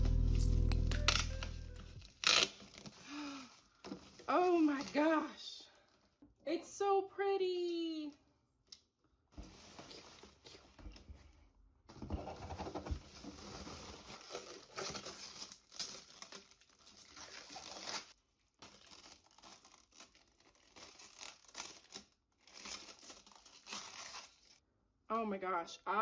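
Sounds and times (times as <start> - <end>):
packaging crinkling and rustling: 0.8 - 5.2, 12.6 - 24.6.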